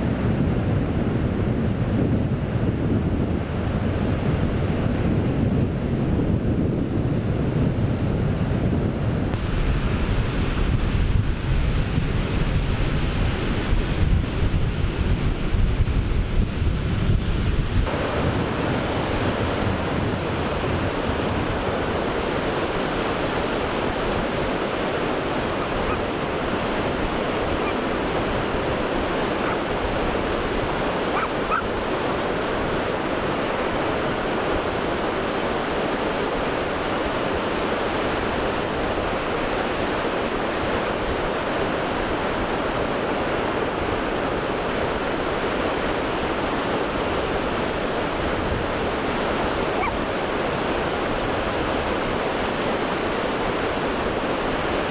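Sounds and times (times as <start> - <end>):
waves breaking: 17.1 - 54.9.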